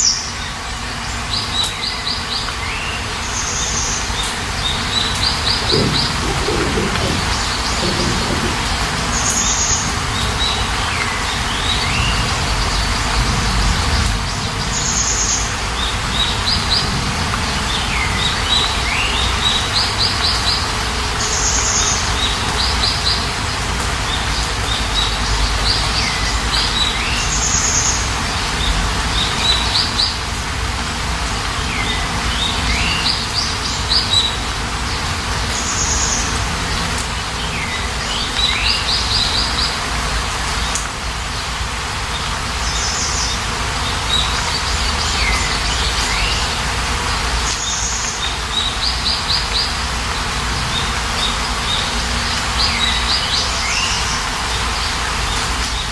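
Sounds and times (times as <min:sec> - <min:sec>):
songbird singing: 0:00.0 - 0:17.0, 0:47.4 - 0:55.9
steady rain: 0:00.0 - 0:55.9.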